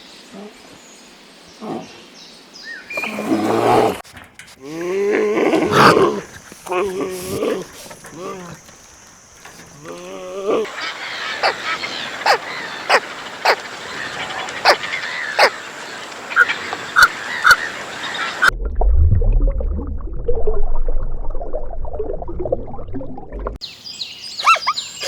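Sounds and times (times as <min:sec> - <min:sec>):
farm birds honking: 0:04.0 - 0:15.5
low rumbling noise: 0:18.5 - 0:23.6.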